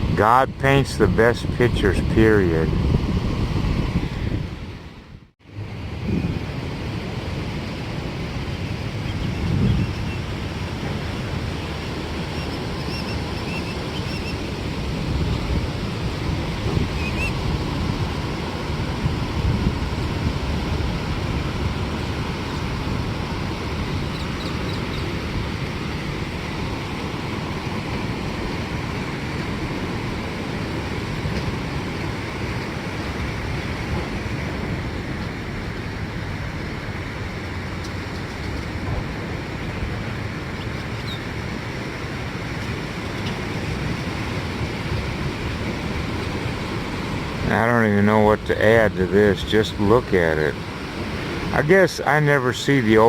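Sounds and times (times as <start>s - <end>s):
surf washing onto beach: 0.0s - 53.0s
faint high calls: 12.3s - 14.5s.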